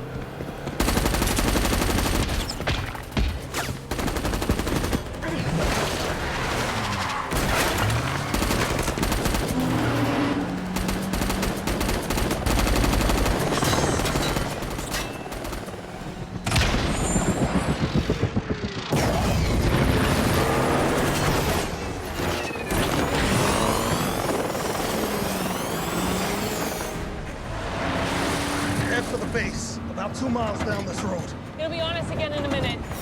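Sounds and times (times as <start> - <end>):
vehicle noise: 0.0 - 33.0
automatic gunfire: 10.7 - 15.6.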